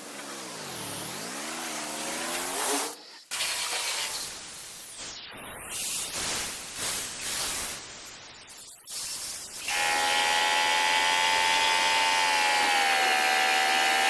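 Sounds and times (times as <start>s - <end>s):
car wash water jets spraying: 0.3s - 4.5s.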